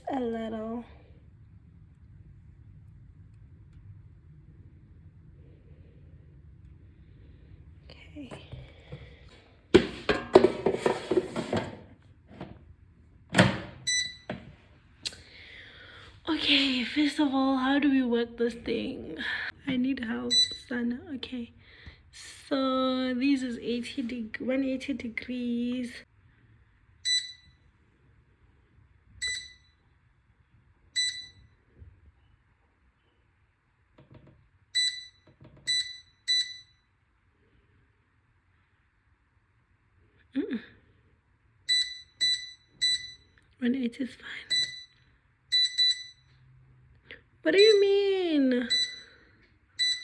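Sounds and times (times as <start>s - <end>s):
air fryer basket clunking: 9.8s - 11.8s, 13.3s - 14.4s
short electronic beep: 27.1s - 27.6s, 29.2s - 29.8s, 31.0s - 31.5s, 41.7s - 43.2s, 44.5s - 46.2s, 48.7s - 49.1s.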